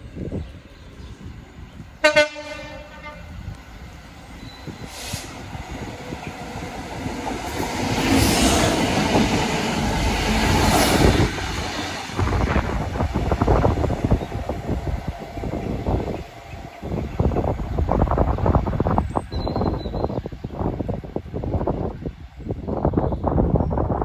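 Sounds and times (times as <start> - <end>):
train rumble and wheel noise: 0.0 - 24.0
train horn blast: 2.0 - 3.6.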